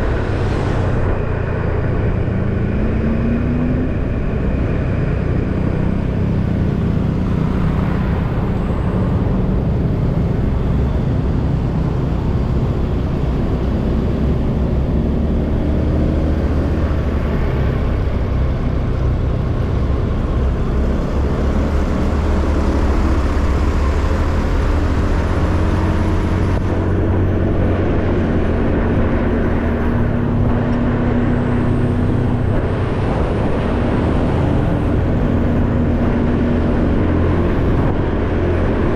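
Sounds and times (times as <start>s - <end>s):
wind and road noise: 0.0s - 38.9s.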